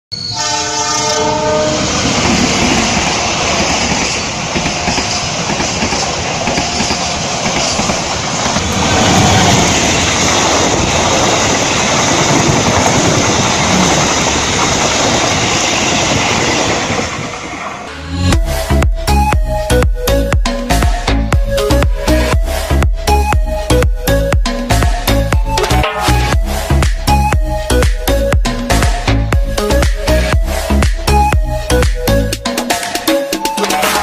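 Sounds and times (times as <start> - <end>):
passenger train passing: 0.1 - 34.0
locomotive horn: 0.2 - 2.1.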